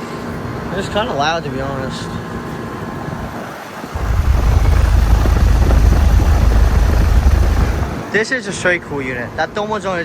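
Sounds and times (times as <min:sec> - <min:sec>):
air conditioner unit whirring: 0:00.0 - 0:08.4
low wind rumble on microphone: 0:03.2 - 0:08.1.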